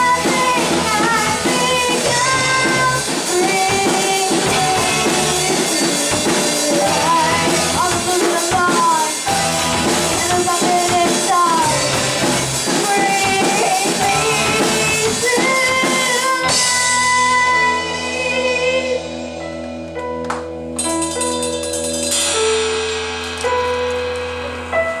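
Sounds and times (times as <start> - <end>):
person singing: 0.0 - 19.7
drums: 0.0 - 25.0
held keyboard chords: 0.0 - 25.0
live rock band playing: 0.0 - 25.0.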